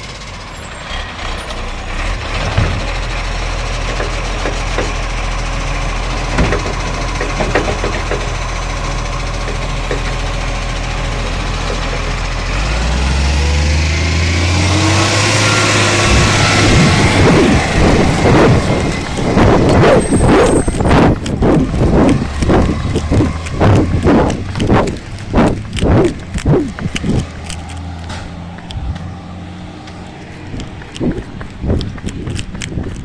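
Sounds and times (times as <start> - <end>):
diesel engine running: 0.0 - 33.0
engine knocks: 1.2 - 29.2, 29.8 - 33.0
hissing and clattering: 6.1 - 8.5, 16.0 - 28.3.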